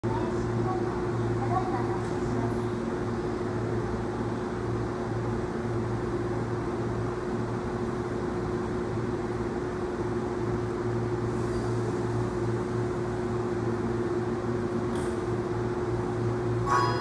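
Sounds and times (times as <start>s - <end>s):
electric train humming: 2.9s - 17.0s
constant mid-pitched tone: 16.2s - 17.0s.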